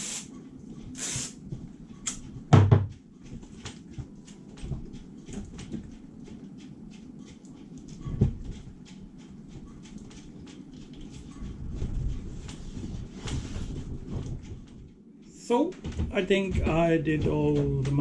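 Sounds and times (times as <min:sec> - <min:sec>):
loud knock: 0:02.5 - 0:03.0.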